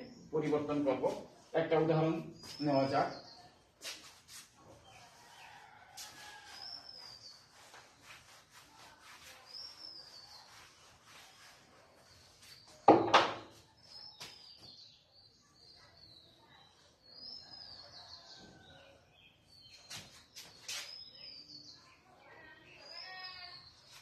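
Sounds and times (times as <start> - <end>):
small birds chirping: 0.0 - 24.0
sharp loud knock: 12.9 - 13.5.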